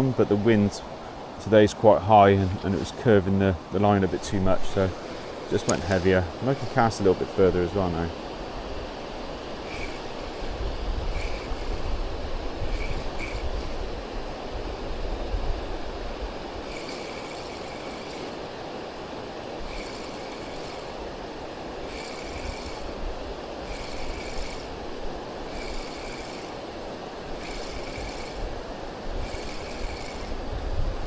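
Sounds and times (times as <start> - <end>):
wind buffeting microphone: 2.2 - 31.0
fishing reel whirring: 4.7 - 30.6.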